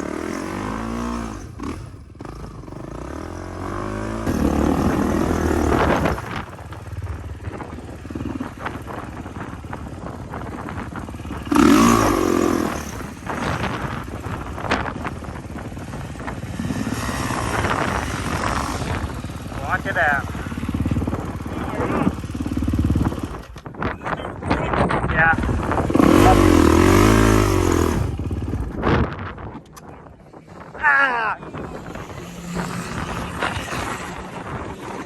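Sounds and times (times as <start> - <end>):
dirt bike engines revving: 0.0 - 35.0.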